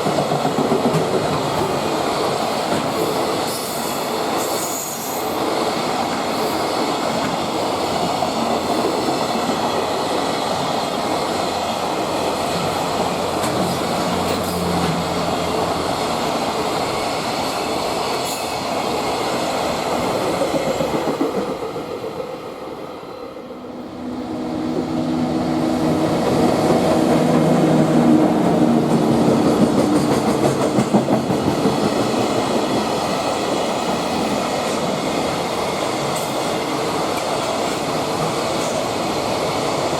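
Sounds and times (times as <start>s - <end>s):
freight train clickety-clack: 0.0s - 22.8s, 24.6s - 39.9s.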